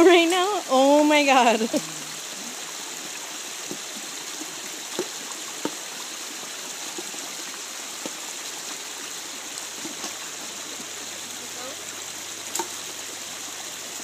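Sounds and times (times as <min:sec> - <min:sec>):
creek water running over rocks: 0:00.0 - 0:14.0
small water splashes: 0:00.0 - 0:14.0.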